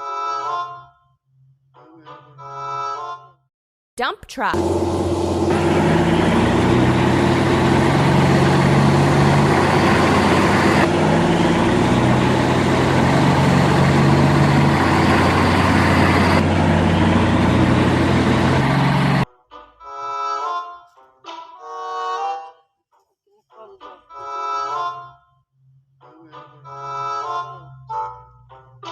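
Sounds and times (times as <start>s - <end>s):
truck engine running: 4.6s - 19.2s.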